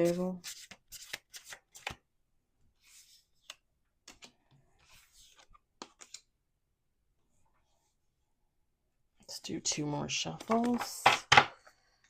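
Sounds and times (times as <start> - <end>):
cards sliding: 0.0 - 2.0, 2.8 - 6.3.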